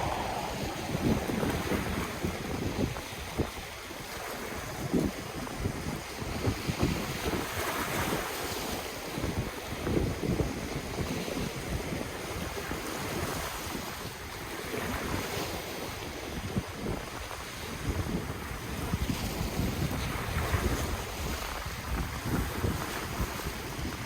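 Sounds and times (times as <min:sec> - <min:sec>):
ocean waves washing on shore: 0:00.0 - 0:02.9
wind buffeting microphone: 0:00.0 - 0:03.8.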